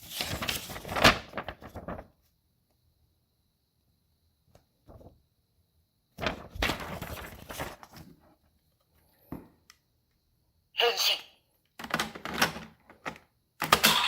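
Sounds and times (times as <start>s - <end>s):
plastic clattering and rubbing: 11.8s - 13.9s.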